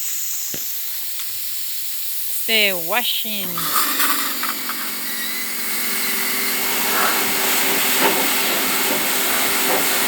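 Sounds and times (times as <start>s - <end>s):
pressure washer motor hum: 1.2s - 10.0s
water jet spraying: 2.3s - 10.0s.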